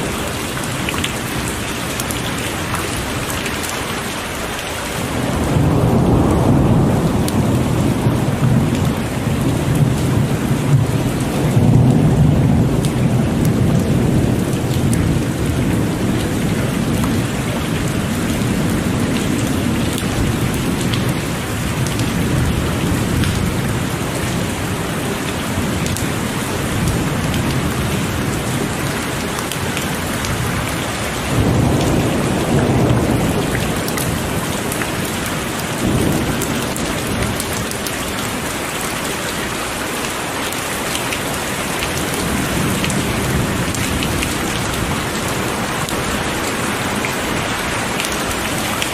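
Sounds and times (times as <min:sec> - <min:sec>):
heavy rain falling: 0:00.0 - 0:48.9
rolling thunder: 0:05.0 - 0:38.5.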